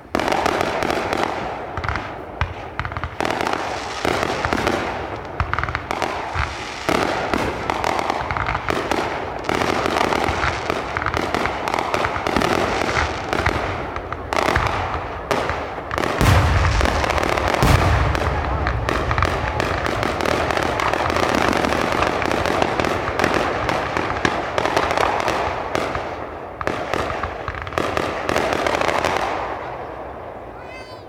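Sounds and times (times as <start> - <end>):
fireworks bangs and crackles: 0.0 - 31.0
loud deep firework boom: 16.2 - 21.7.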